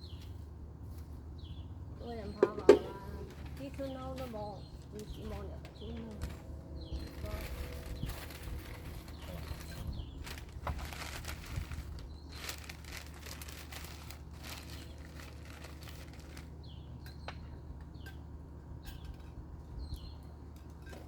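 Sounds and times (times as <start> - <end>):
small birds chirping: 0.0 - 21.0
steady low hum: 0.0 - 21.0
scratchy rustling: 7.0 - 16.5.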